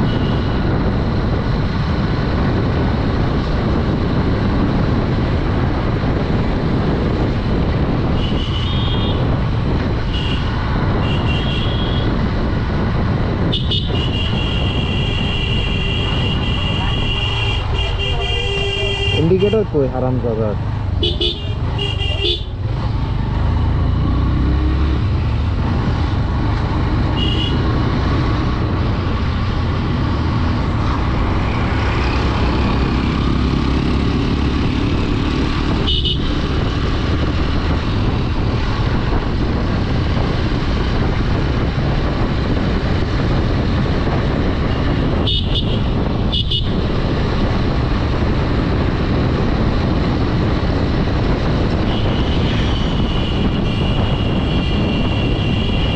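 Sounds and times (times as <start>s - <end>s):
motorcycle engine rumble: 0.0s - 55.9s
wind on microphone: 0.0s - 55.9s.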